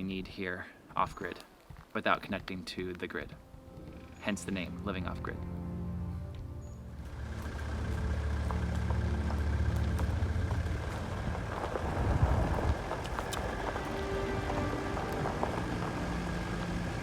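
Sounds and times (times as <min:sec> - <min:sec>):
constant hiss: 0:00.0 - 0:17.0
engine running: 0:03.6 - 0:17.0.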